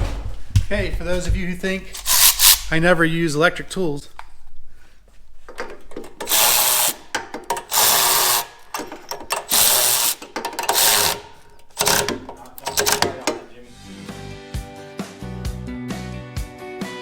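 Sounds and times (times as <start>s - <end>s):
electric drill turning tap: 2.0s - 2.8s, 5.5s - 13.5s.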